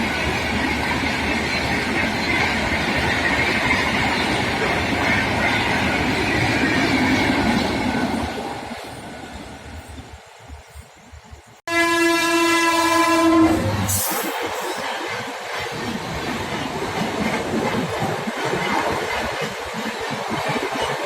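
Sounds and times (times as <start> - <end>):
train rushing past: 0.0 - 10.8, 11.8 - 21.0
locomotive horn blast: 11.7 - 14.3.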